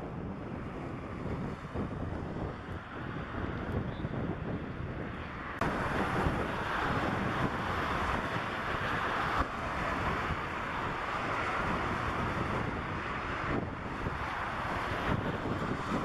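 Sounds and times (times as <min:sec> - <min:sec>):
jet engines roaring: 0:00.0 - 0:16.0
wind buffeting microphone: 0:00.0 - 0:16.0.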